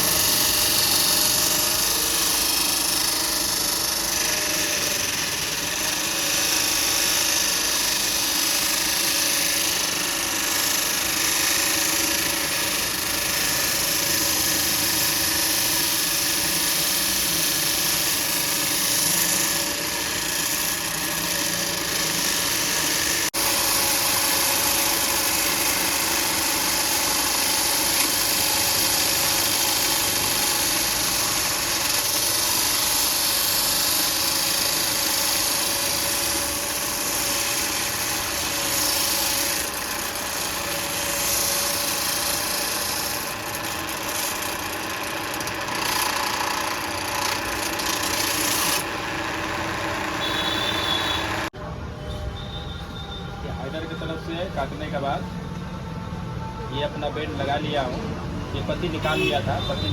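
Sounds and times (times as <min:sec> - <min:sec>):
copper tubing being cut: 0:00.0 - 0:51.6, 0:53.0 - 0:59.9.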